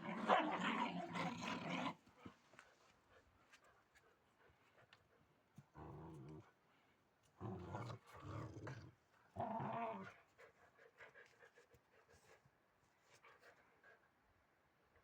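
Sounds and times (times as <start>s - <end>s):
dog growling: 7.4s - 10.2s.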